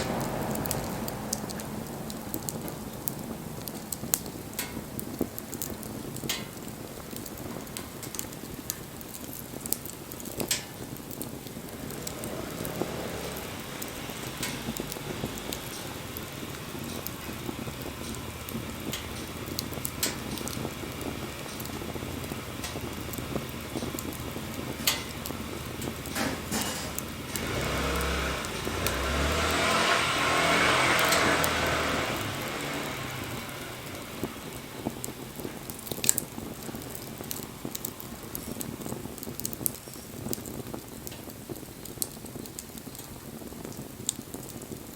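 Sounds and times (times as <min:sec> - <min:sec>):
vehicle passing by: 0:00.0 - 0:04.0, 0:11.5 - 0:35.9
wood fire crackling and popping: 0:00.0 - 0:44.9.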